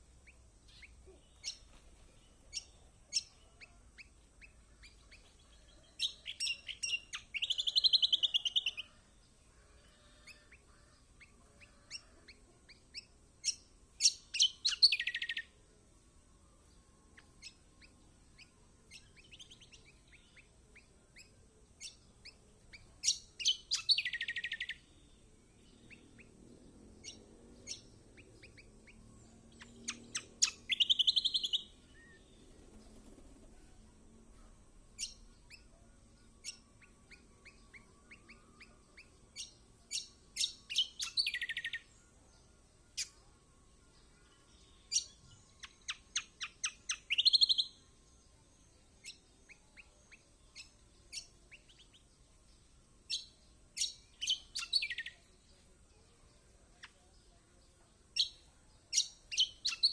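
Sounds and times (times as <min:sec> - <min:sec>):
bird chirping and trilling: 0:00.2 - 0:01.7, 0:02.5 - 0:09.0, 0:13.0 - 0:15.5, 0:17.2 - 0:26.4, 0:27.0 - 0:32.5, 0:34.9 - 0:42.0, 0:44.0 - 0:47.9, 0:53.1 - 0:55.3, 0:58.2 - 0:59.9.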